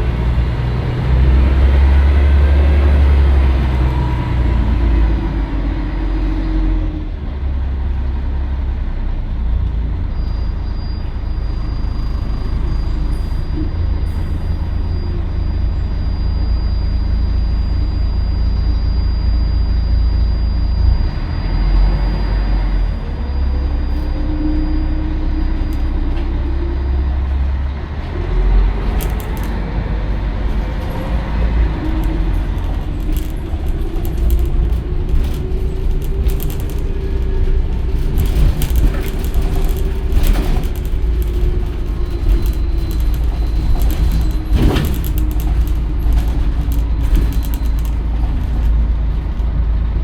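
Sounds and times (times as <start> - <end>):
bus diesel engine accelerating: 0.0 - 50.0
faint high whine: 14.6 - 22.1
heavy low rumble: 22.4 - 50.0.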